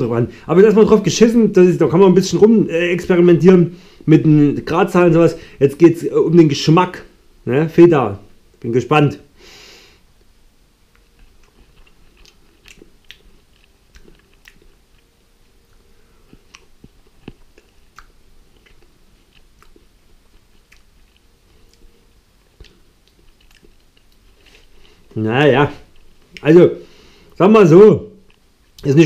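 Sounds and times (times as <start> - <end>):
person chewing food: 10.9 - 26.5, 28.2 - 28.8.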